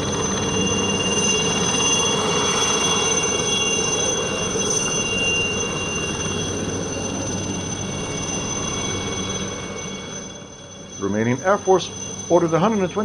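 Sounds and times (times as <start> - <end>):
helicopters flying by: 0.0 - 13.0
high-pitched turbine whine: 0.0 - 13.0.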